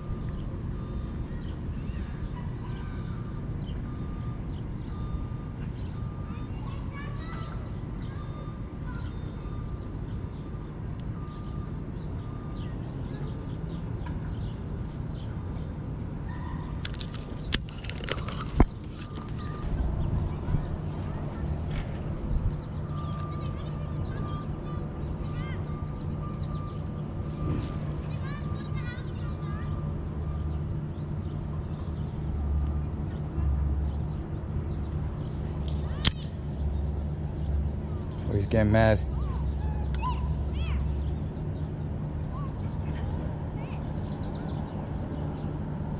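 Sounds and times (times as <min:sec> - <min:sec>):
steady low rumble: 0:00.0 - 0:05.6, 0:16.7 - 0:45.9
small birds chirping: 0:00.0 - 0:45.9.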